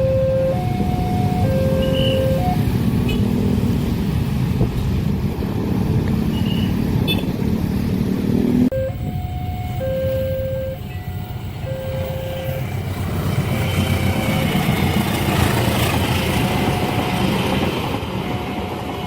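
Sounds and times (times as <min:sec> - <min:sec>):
two-tone crossing alarm: 0:00.0 - 0:02.8, 0:08.7 - 0:12.9, 0:16.1 - 0:19.0
low rumble of vehicles: 0:00.0 - 0:19.0.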